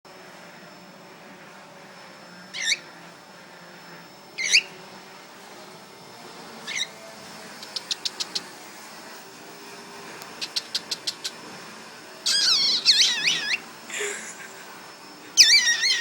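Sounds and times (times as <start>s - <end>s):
cockatiel chirping: 2.6s - 2.8s, 4.4s - 4.7s, 6.6s - 6.9s, 10.4s - 11.4s, 12.3s - 13.6s, 15.4s - 16.0s.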